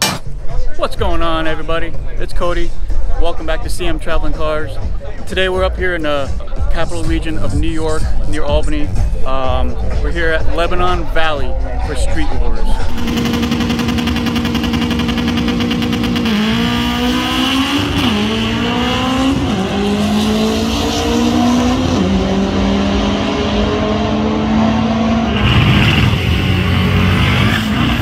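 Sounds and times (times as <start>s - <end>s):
drag car engine revving: 12.9s - 28.0s.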